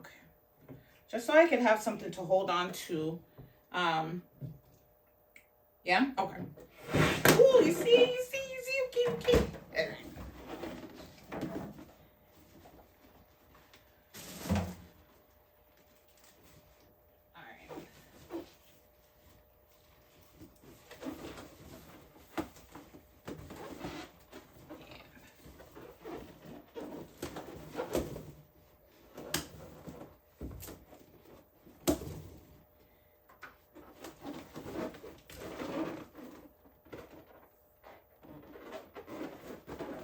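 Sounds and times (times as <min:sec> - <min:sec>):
rubbery balloon squeaks and rustling: 0:06.7 - 0:13.3, 0:17.5 - 0:32.5, 0:33.7 - 0:40.0.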